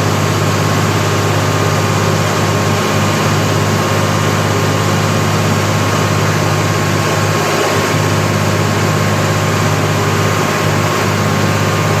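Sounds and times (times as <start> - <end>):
diesel generator droning: 0.0 - 12.0.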